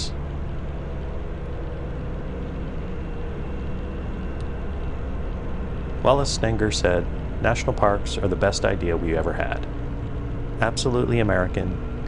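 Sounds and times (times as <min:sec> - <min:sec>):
motorcycle engine drone: 0:00.0 - 0:12.0
road and wind noise: 0:00.0 - 0:12.0.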